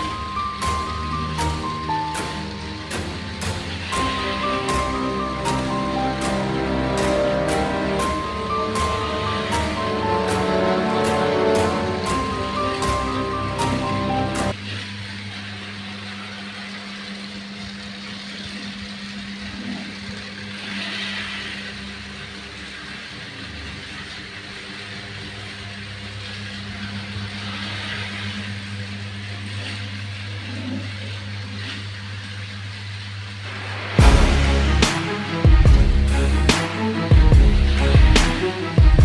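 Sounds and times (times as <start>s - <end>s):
toy motor humming: 0.0s - 16.8s, 19.4s - 32.7s.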